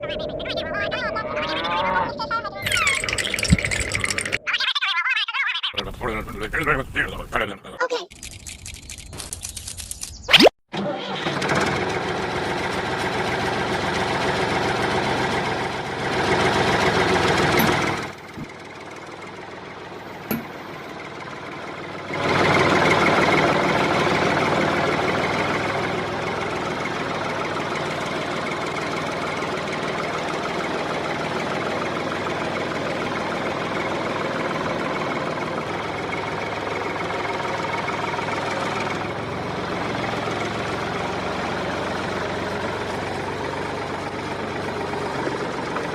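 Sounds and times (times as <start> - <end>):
model tractor engine running: 10.8 - 45.9.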